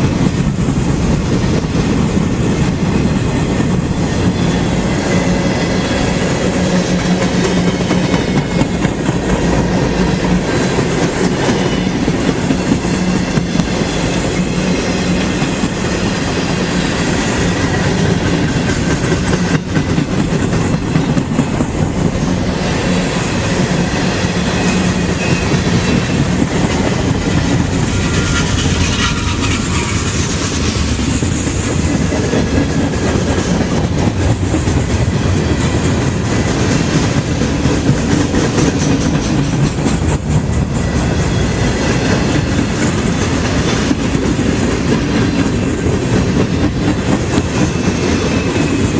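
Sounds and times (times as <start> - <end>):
train wheels clicking on rails: 0.0 - 48.9.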